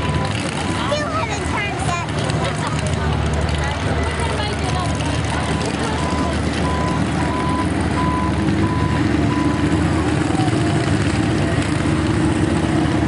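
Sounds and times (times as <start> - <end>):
heavy vehicle engine running: 0.0 - 13.0
reversing beeper beeps: 4.9 - 9.8.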